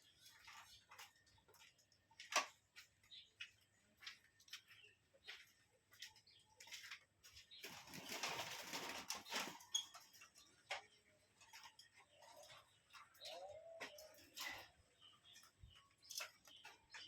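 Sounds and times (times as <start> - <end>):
bird wings fluttering: 7.6 - 9.8
faint bird chirps: 9.2 - 17.0.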